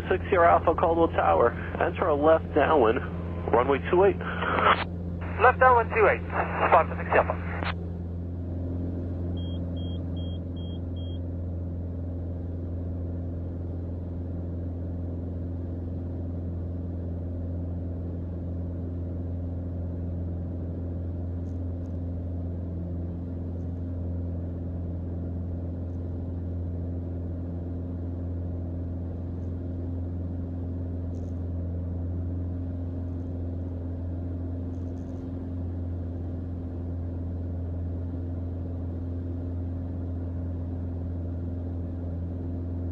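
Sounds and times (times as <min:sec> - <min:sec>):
small plane engine and propeller drone: 0:00.0 - 0:42.9.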